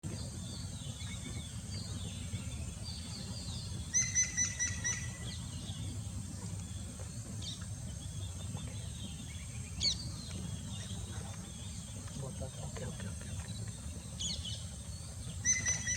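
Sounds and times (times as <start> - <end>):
steady low rumble: 0.0 - 15.9
birds calling and chirping: 0.1 - 15.9.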